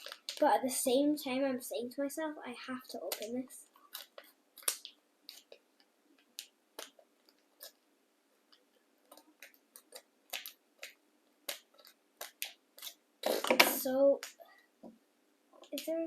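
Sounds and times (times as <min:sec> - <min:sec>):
plastic packet crackling: 0:00.0 - 0:00.5.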